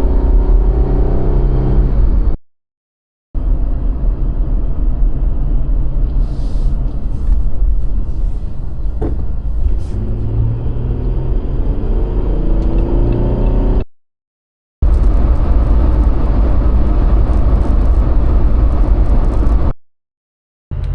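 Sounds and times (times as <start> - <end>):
road rumble: 0.0 - 2.4, 3.4 - 13.9, 14.8 - 19.7
vehicle engine revving: 0.0 - 2.4, 9.6 - 13.9.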